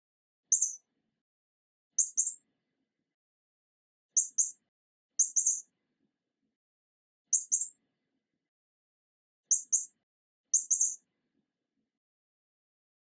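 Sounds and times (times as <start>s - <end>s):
high short bird chirps: 0.5s - 0.8s, 2.0s - 2.4s, 4.2s - 5.7s, 7.3s - 7.8s, 9.5s - 10.0s, 10.6s - 11.0s.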